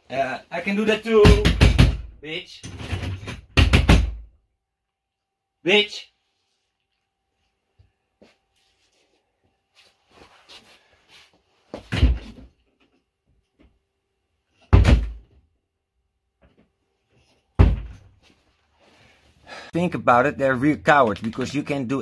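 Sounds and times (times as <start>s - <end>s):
loud bangs against door: 1.2s - 2.1s, 2.8s - 4.3s, 14.7s - 15.2s, 17.6s - 18.0s.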